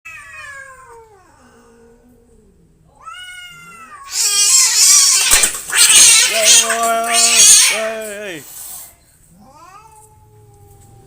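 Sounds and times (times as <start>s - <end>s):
cats yowling: 3.0s - 8.4s
cats hissing and screeching: 3.0s - 11.0s.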